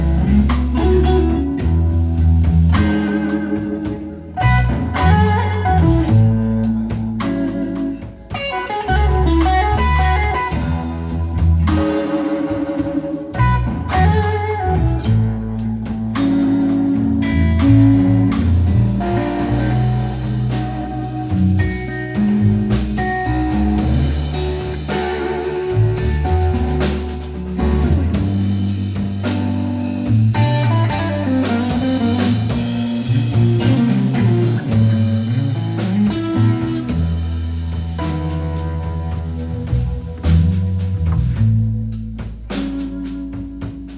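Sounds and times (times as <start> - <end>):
bass guitar line: 0.0 - 43.9
blues band playing: 0.0 - 43.9
drum kit: 0.0 - 43.9
electric guitar lines: 0.0 - 43.9.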